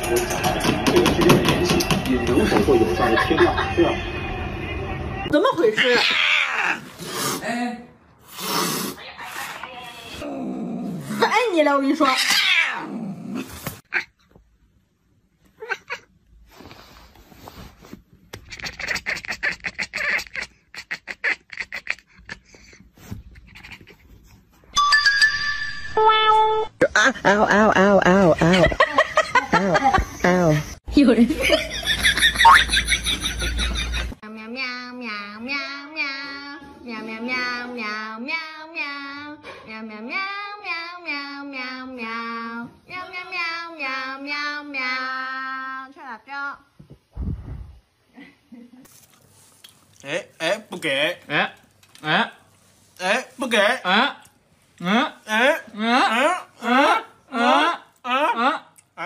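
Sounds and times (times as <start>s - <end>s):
cat hissing: 5.8s - 7.5s, 8.2s - 10.2s
child singing: 34.3s - 45.9s.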